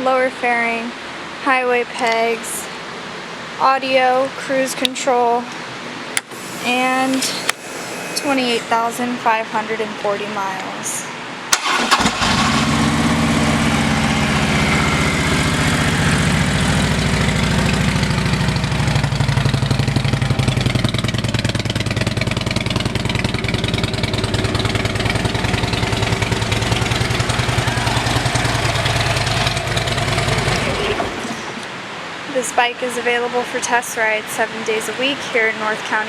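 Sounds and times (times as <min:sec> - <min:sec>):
motorcycle engine idling: 0:12.5 - 0:31.4.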